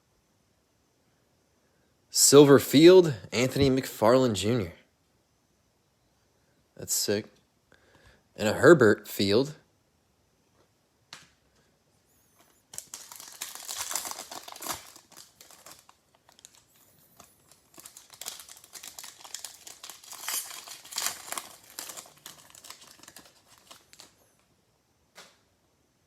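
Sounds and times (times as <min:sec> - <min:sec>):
plastic wrapper crinkling and tearing: 0:12.7 - 0:24.2.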